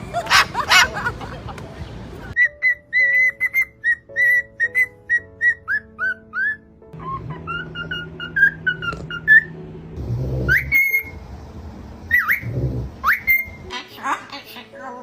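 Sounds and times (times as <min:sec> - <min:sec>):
whistled tune: 0:02.4 - 0:09.6, 0:10.4 - 0:11.2, 0:12.1 - 0:13.7.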